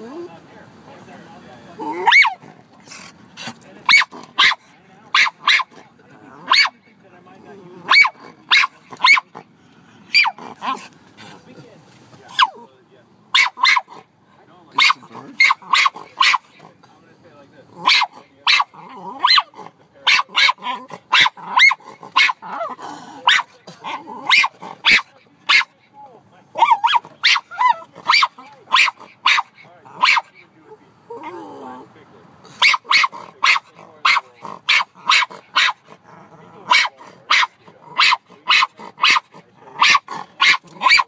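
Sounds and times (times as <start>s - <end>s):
dog barking: 2.0s - 2.4s, 3.9s - 5.8s, 6.5s - 6.8s, 7.9s - 9.3s, 10.1s - 10.8s, 13.3s - 14.0s, 14.8s - 16.5s, 17.8s - 25.7s, 26.6s - 30.3s, 32.6s - 35.8s, 36.7s - 41.0s.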